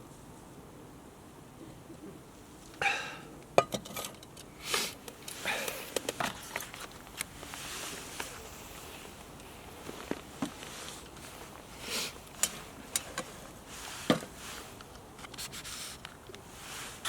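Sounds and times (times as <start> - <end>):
scraping and rustling: 3.8 - 17.0.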